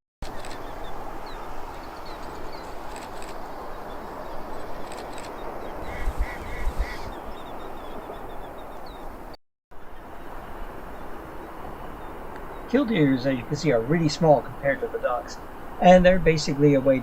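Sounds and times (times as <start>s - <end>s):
steady background noise: 0.2s - 17.0s
ducks quacking: 5.7s - 8.2s.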